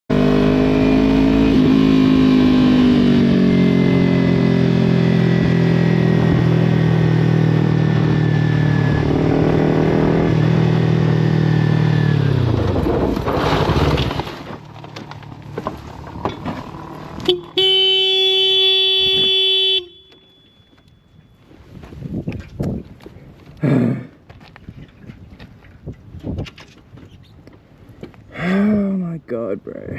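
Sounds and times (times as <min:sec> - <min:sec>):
motorcycle engine running: 0:00.1 - 0:21.0.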